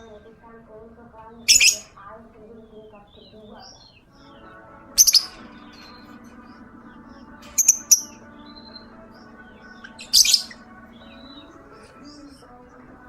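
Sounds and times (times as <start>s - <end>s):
faint bird chirps: 0.0s - 13.0s
lovebird shrill calls: 1.4s - 2.0s, 3.1s - 6.0s, 7.5s - 11.6s.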